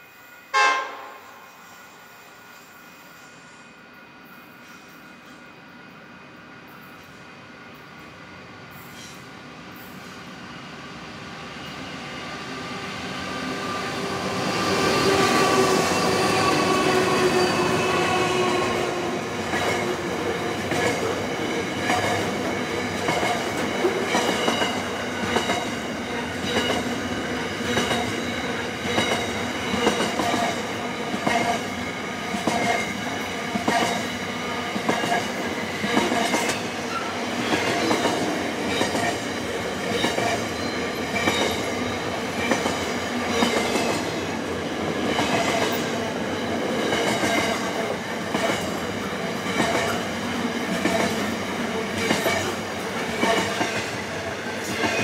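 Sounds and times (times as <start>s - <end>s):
diesel locomotive engines passing: 0.0s - 55.0s
high wheel squeal: 14.5s - 18.8s.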